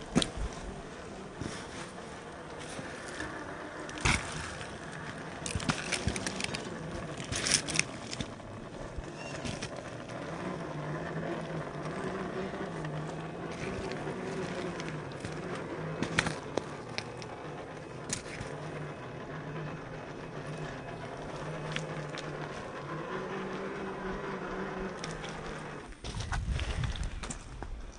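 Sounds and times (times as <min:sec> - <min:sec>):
electric motor humming: 0:00.0 - 0:27.9
tyres clicking on ice and rock: 0:00.0 - 0:27.9.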